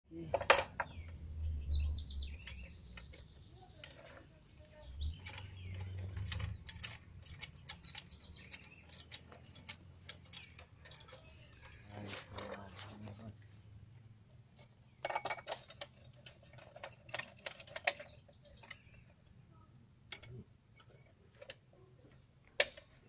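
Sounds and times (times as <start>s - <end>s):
birds chirping: 0.1s - 23.0s
sharp clicks and knocks: 0.3s - 13.2s, 20.1s - 23.0s.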